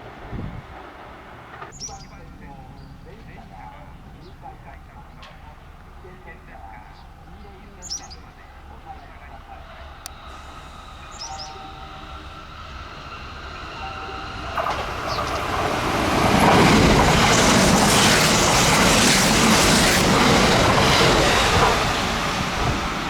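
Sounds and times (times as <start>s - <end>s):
electric train passing: 0.0s - 23.0s
wheels clattering over rail joints: 13.6s - 23.0s.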